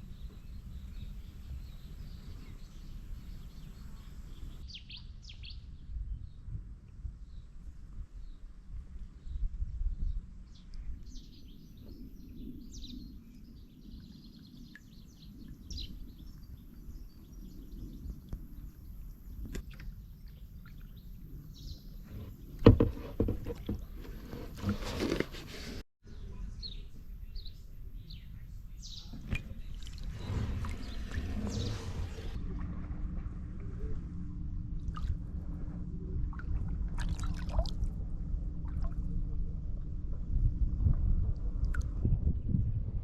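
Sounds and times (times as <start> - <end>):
paddle splashing water: 22.0 - 25.8, 29.1 - 33.5, 36.2 - 37.9
low steady rumble: 29.4 - 43.0.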